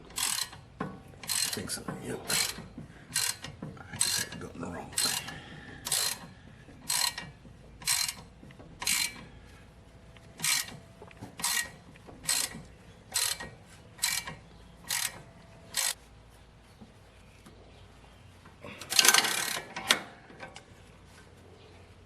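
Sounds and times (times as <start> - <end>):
ratchet wrench clicking: 0.1 - 0.6, 1.2 - 1.6, 2.3 - 9.3, 10.4 - 10.8, 11.4 - 16.0, 18.9 - 19.8.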